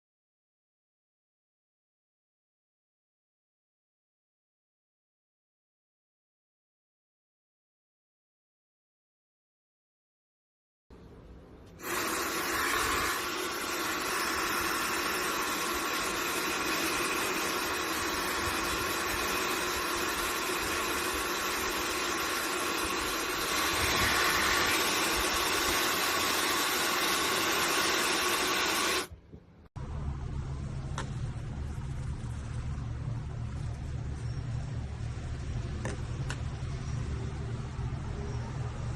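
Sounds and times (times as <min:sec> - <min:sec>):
hair dryer air rushing: 0:11.8 - 0:29.1.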